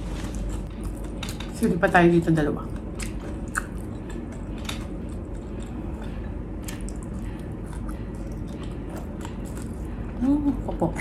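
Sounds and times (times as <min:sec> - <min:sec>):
wet squishy chewing: 0:02.7 - 0:10.1.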